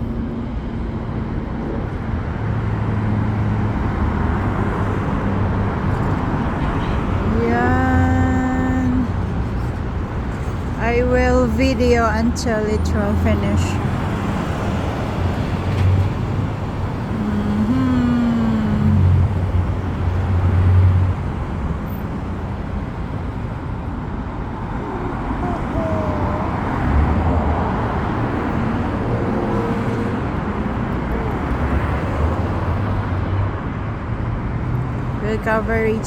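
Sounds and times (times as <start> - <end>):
street traffic: 0.0 - 36.0.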